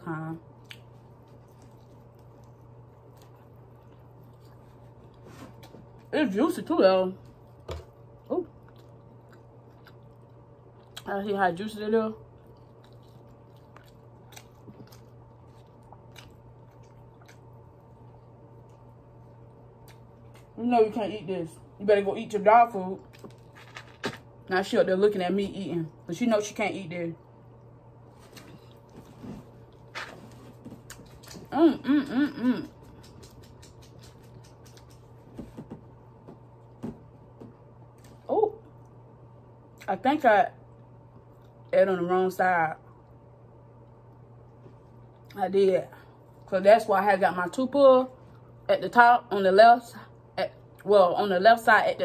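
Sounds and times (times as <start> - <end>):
chewing fried fish: 0.5 - 6.1, 7.2 - 11.1, 12.2 - 20.6, 28.3 - 31.6, 32.2 - 35.7.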